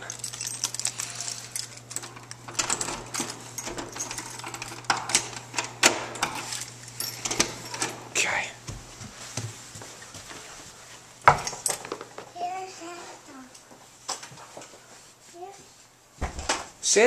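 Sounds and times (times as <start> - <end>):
door opening: 0.0 - 8.2
keys rattling in door lock: 0.0 - 8.2.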